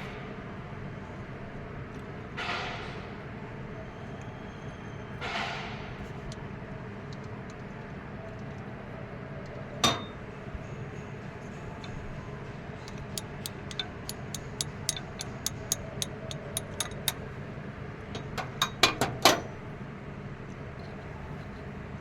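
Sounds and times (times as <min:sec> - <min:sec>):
steady low hum: 0:09.6 - 0:22.0
metal tools clinking: 0:09.8 - 0:10.3, 0:12.9 - 0:17.3, 0:18.2 - 0:19.6
light metallic clicks: 0:12.8 - 0:17.3.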